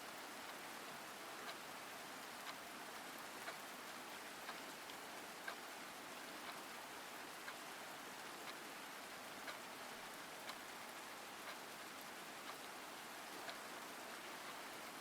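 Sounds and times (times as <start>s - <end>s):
steady rain hiss: 0.0s - 15.0s
faint sharp ticks: 4.5s - 5.6s, 13.4s - 13.7s.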